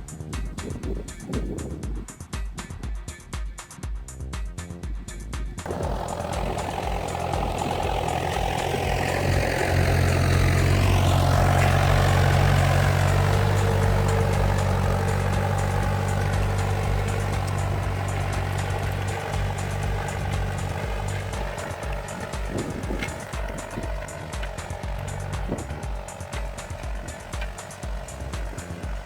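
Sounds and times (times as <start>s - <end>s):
tractor engine rumbling: 0.0s - 3.5s, 4.9s - 29.0s.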